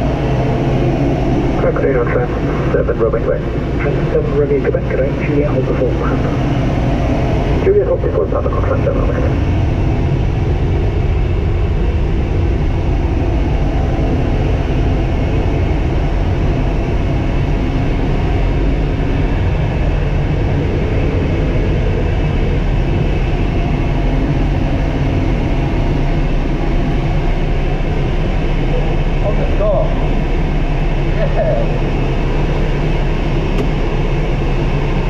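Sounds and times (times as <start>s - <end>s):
tug engine low rumble: 0.0s - 35.0s.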